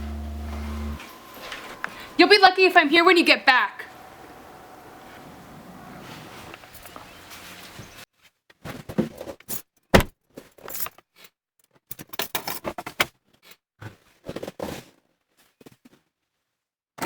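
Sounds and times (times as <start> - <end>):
rustling and scraping: 5.0 - 8.0.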